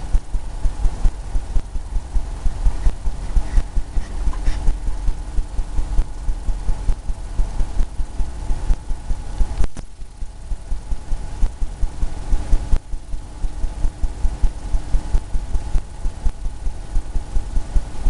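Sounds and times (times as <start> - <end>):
brush tapping against canvas: 2.8 - 4.9.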